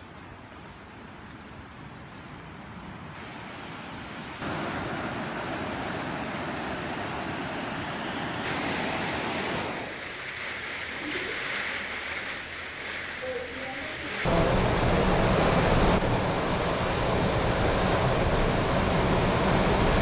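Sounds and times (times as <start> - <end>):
surf rushing: 3.2 - 20.0
storm wind: 13.9 - 20.0.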